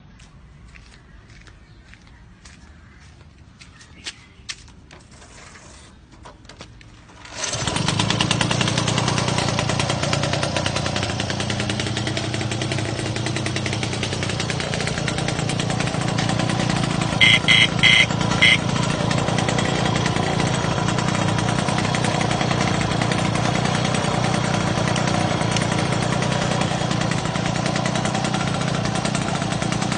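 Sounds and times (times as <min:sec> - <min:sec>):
moped engine running: 0:07.0 - 0:29.9
short high-pitched beeps: 0:17.2 - 0:18.6.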